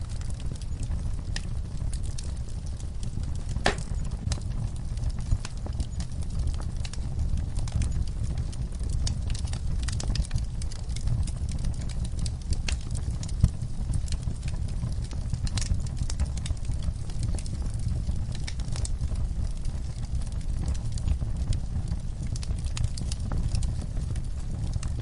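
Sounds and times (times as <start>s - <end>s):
fire crackling and popping: 0.0s - 25.0s
fire rumbling: 0.0s - 25.0s.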